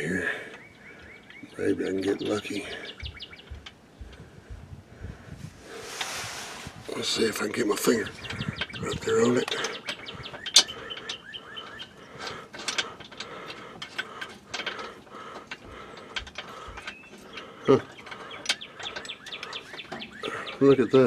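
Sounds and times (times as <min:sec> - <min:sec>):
metallic clicks of bolt tightening: 0:07.8 - 0:20.6.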